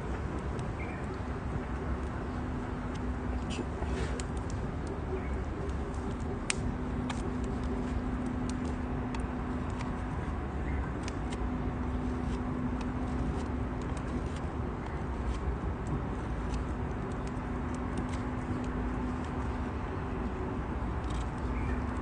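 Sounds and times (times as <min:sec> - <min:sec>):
faint hum: 0:00.0 - 0:22.0
wood fire crackling and popping: 0:02.9 - 0:09.9.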